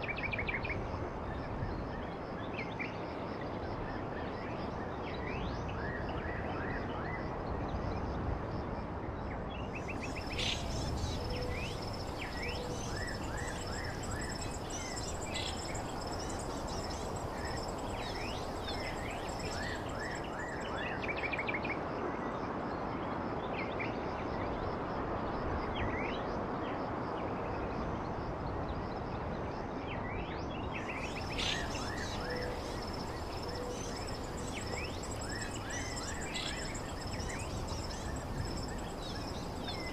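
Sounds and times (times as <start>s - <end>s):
background rush of noise: 0.0s - 39.9s
birds chirping: 10.0s - 20.7s, 30.9s - 39.9s.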